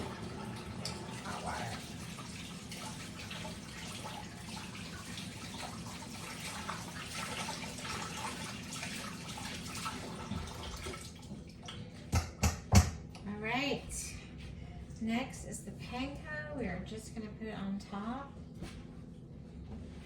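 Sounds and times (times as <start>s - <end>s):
tap running into a sink: 9.8s - 13.0s.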